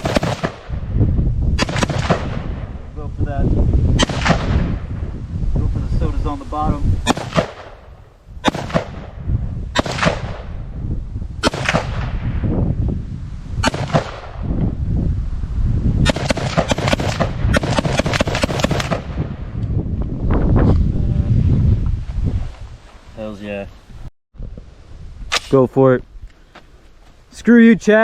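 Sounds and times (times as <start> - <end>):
rifle shots: 0.0 - 0.8, 1.6 - 2.6, 4.0 - 4.7, 7.1 - 9.2, 9.8 - 10.5, 11.4 - 12.3, 13.6 - 14.4, 16.0 - 19.3.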